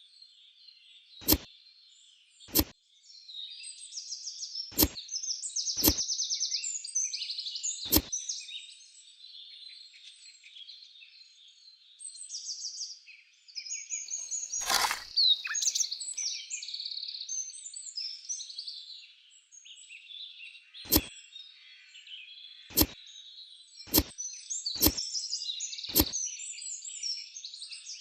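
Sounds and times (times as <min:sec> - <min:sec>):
birds chirping and trilling: 0:13.7 - 0:17.4.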